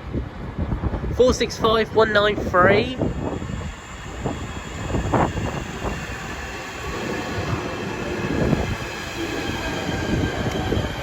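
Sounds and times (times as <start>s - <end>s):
train wheels rumbling on rail: 0.0s - 11.0s
train wheel squeal: 3.0s - 11.0s.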